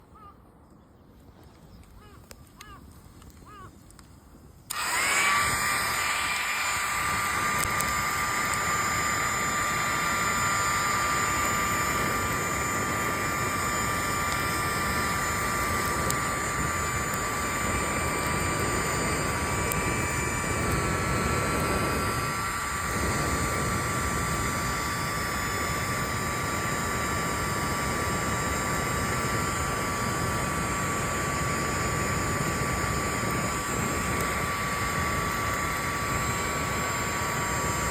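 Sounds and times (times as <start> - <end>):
electric fan whining: 1.8 - 37.9.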